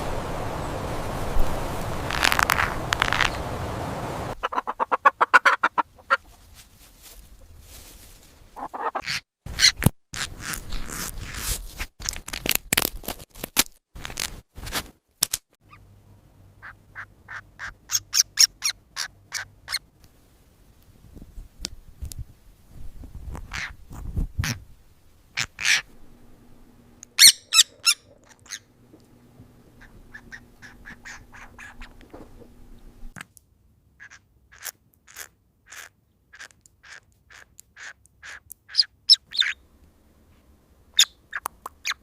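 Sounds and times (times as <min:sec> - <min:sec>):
short sharp bird calls: 0:27.1 - 0:28.7, 0:29.8 - 0:32.9.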